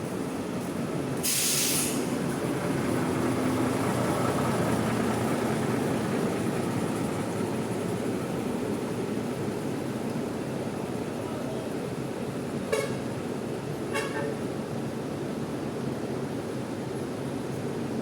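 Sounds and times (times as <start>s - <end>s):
bus engine rumbling: 0.0s - 18.0s
short hiss: 1.2s - 2.1s.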